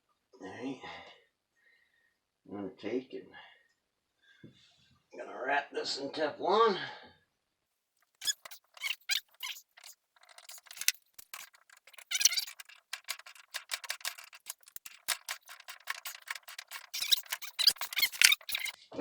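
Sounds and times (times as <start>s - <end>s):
thread tape crackling: 8.2s - 19.0s.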